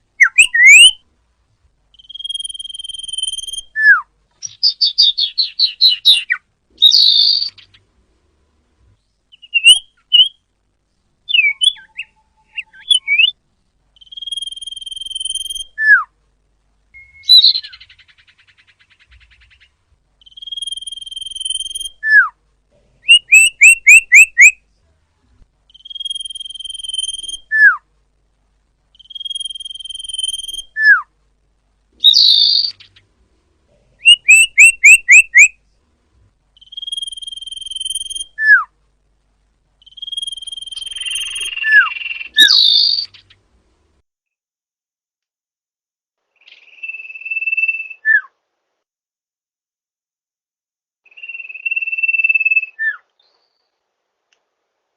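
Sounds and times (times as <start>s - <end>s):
bird whistled song: 0.2s - 1.0s, 1.9s - 7.8s, 9.3s - 10.4s, 11.3s - 13.4s, 14.0s - 16.1s, 17.0s - 22.4s, 23.0s - 24.6s, 25.7s - 27.8s, 28.9s - 31.1s, 32.0s - 33.0s, 34.0s - 35.6s, 36.6s - 38.7s, 39.8s - 43.4s, 46.4s - 48.4s, 51.1s - 53.6s
harsh buzzy bird call: 0.2s - 1.0s, 23.0s - 24.6s, 34.0s - 35.5s, 39.8s - 43.4s
rising bird chirps: 0.2s - 1.0s, 1.9s - 7.9s, 9.0s - 10.5s, 11.2s - 16.2s, 17.0s - 22.4s, 23.0s - 24.6s, 25.7s - 27.9s, 28.9s - 31.1s, 32.0s - 33.1s, 34.0s - 35.6s, 36.5s - 38.8s, 39.8s - 43.4s, 46.4s - 48.3s, 51.0s - 53.7s.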